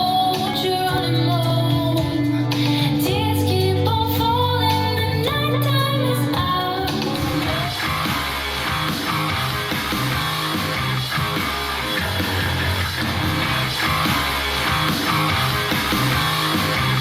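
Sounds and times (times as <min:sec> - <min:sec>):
rock music from speaker: 0:00.0 - 0:17.0.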